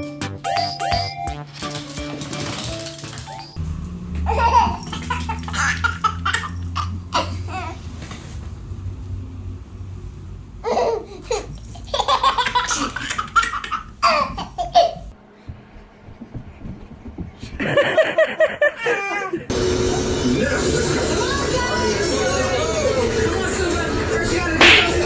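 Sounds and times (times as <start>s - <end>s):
baby laughing: 0.4s - 1.3s, 4.2s - 7.8s, 10.6s - 15.1s, 17.8s - 19.5s.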